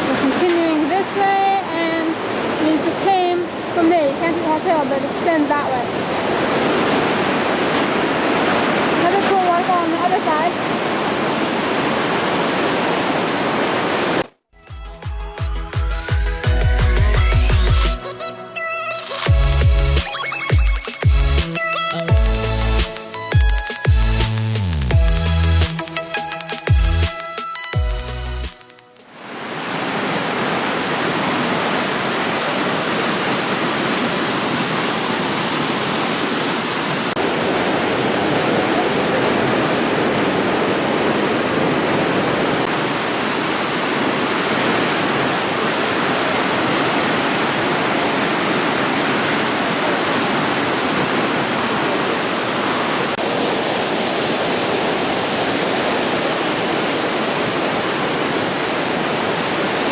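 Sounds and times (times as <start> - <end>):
waterfall rushing: 0.0 - 14.2, 29.1 - 59.9.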